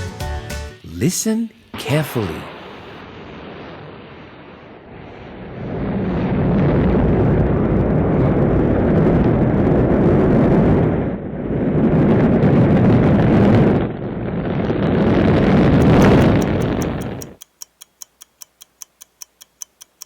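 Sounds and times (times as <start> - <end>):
rocket engines rumbling: 15.2 - 17.4.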